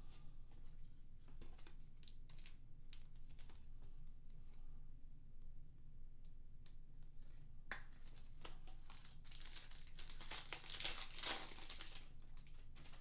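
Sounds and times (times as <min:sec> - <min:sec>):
foil wrapper crinkling and tearing: 0:01.6 - 0:02.6, 0:08.0 - 0:13.0.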